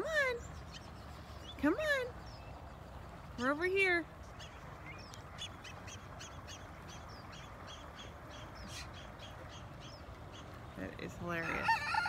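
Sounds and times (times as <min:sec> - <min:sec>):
low steady rumble: 0:00.0 - 0:11.8
bird chirping: 0:00.3 - 0:02.8, 0:04.2 - 0:10.7.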